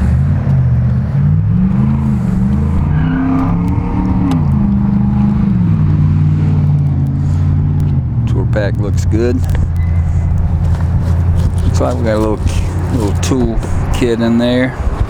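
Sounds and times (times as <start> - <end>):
motorcycle engine running: 3.6 - 15.0.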